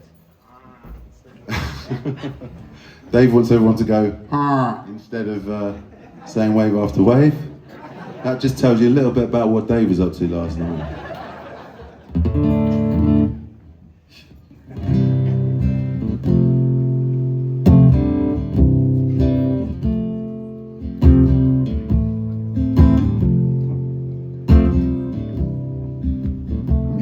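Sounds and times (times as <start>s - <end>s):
guitar strumming chords: 12.1s - 13.5s, 14.8s - 27.0s.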